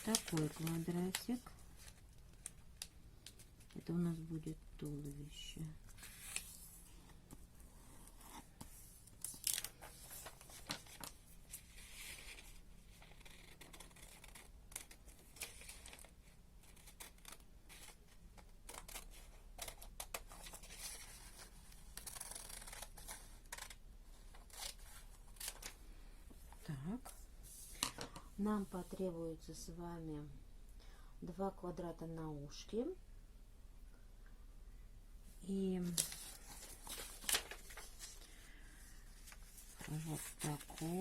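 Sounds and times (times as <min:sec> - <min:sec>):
paper rustling: 0:00.0 - 0:02.5, 0:08.2 - 0:16.1, 0:35.8 - 0:41.0.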